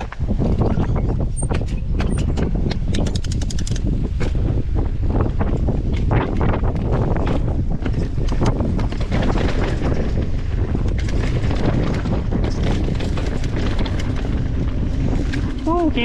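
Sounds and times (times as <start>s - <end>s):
wind buffeting microphone: 0.0s - 16.0s
bike clattering over ground: 5.6s - 15.8s.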